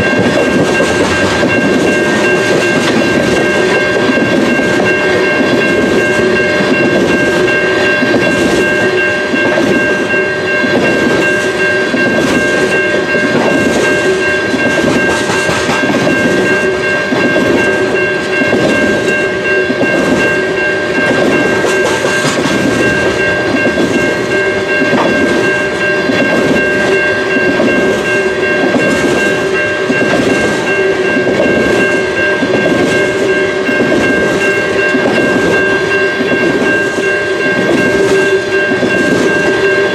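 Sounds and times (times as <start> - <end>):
freight train wheels clicking: 0.0 - 39.9
high ringing tone: 0.0 - 39.9.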